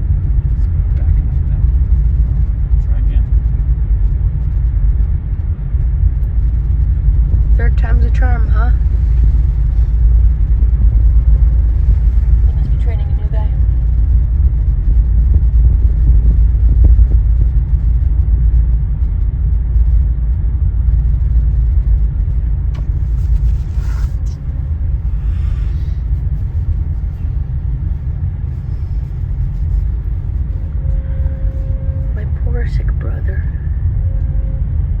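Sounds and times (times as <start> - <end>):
ship engines rumbling: 6.4 - 18.1, 20.6 - 35.0.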